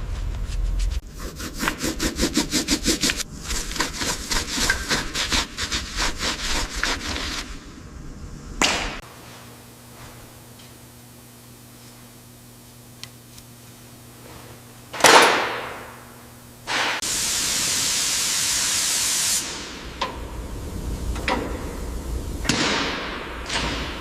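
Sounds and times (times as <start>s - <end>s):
steady hiss: 16.6s - 24.0s.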